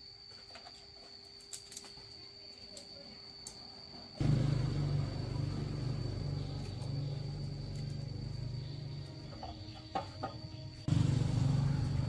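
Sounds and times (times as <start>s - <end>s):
high insect-like whine: 0.0s - 12.0s
machine motor humming: 4.2s - 9.3s.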